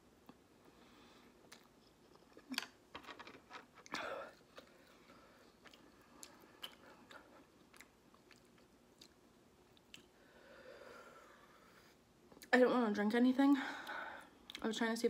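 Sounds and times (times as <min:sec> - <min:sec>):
person chewing noodles: 0:01.3 - 0:02.6, 0:03.8 - 0:10.2.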